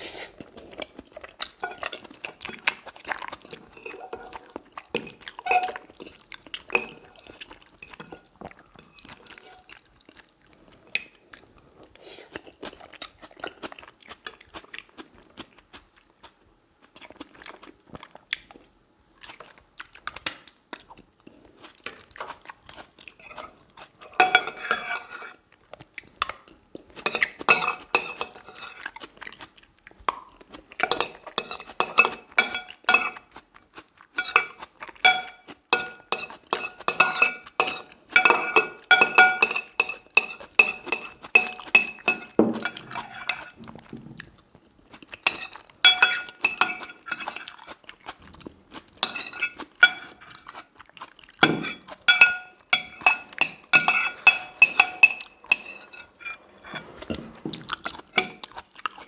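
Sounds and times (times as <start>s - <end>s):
chewing food: 0.1s - 20.1s, 20.7s - 24.2s, 28.6s - 31.8s, 32.7s - 36.6s, 42.8s - 52.7s, 57.5s - 59.0s
fork clinking on plate: 3.7s - 4.5s, 24.1s - 25.2s, 27.1s - 28.7s, 30.8s - 33.2s, 34.2s - 43.6s, 45.3s - 47.5s, 49.0s - 50.4s, 51.4s - 57.2s, 58.2s - 58.4s.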